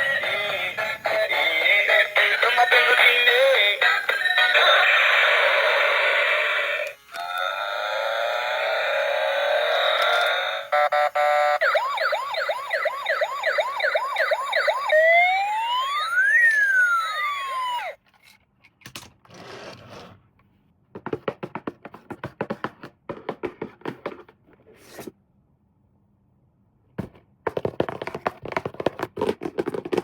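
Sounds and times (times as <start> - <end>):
toy police siren: 0.0 - 18.0.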